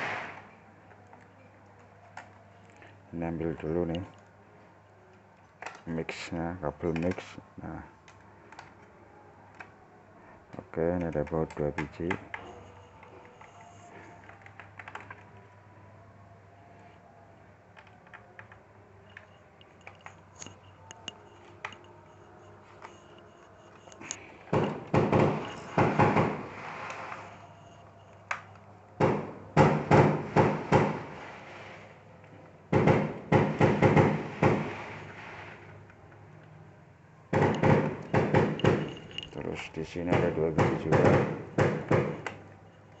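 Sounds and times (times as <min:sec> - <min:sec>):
screwdriver clicking and scraping: 0:19.1 - 0:21.9.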